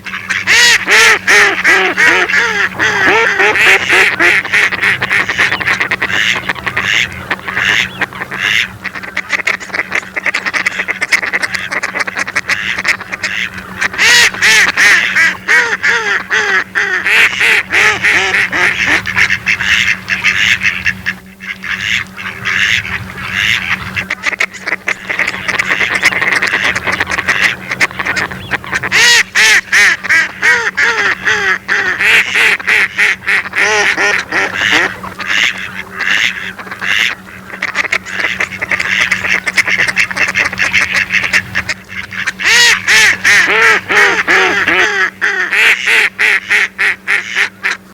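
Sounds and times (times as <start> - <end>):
ducks quacking: 0.0 - 47.9.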